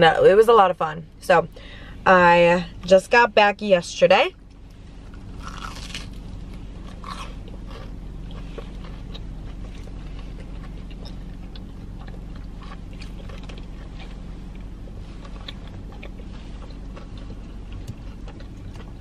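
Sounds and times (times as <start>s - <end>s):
steady low hum: 0.0s - 19.0s
crunchy bites and chewing: 4.4s - 19.0s.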